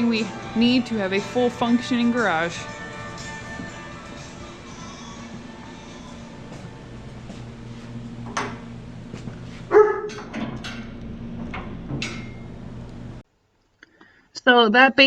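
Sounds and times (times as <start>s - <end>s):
steady low hum: 0.0s - 13.2s
dog barking: 9.7s - 10.2s.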